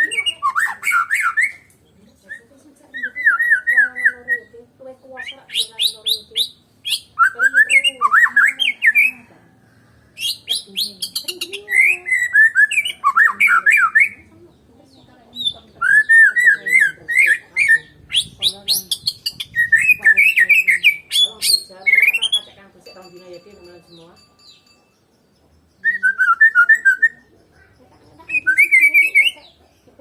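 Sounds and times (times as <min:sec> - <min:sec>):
bird singing whistled phrases: 0:00.0 - 0:01.7, 0:02.3 - 0:04.5, 0:05.2 - 0:09.1, 0:10.2 - 0:14.2, 0:15.4 - 0:22.4, 0:25.8 - 0:27.2, 0:28.3 - 0:29.4.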